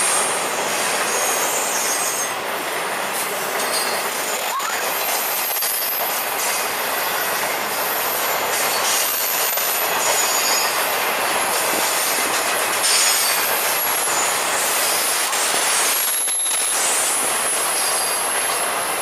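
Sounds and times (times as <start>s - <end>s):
train wheels rolling on rail: 0.0s - 19.0s
high wheel squeals: 1.0s - 2.4s, 3.6s - 10.9s, 12.8s - 18.4s.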